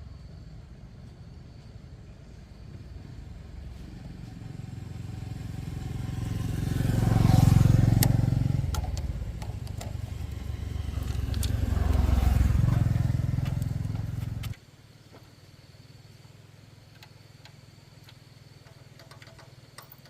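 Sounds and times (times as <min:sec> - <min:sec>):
motorcycle engine running: 0:02.6 - 0:14.6.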